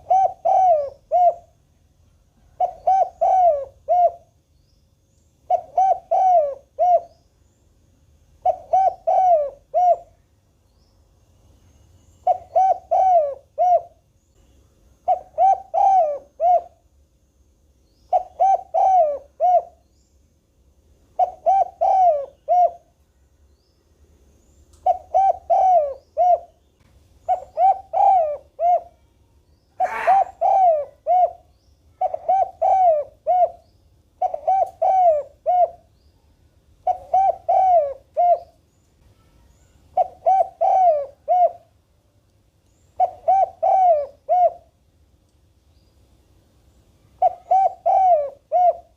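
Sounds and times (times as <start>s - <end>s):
dove cooing: 0.0s - 1.6s, 2.5s - 4.3s, 5.5s - 7.2s, 8.4s - 10.2s, 12.2s - 14.0s, 15.0s - 16.8s, 18.1s - 19.8s, 21.2s - 22.9s, 24.8s - 26.6s, 27.2s - 29.0s, 29.8s - 35.9s, 36.8s - 38.6s, 39.9s - 41.8s, 43.0s - 44.7s, 47.2s - 48.9s.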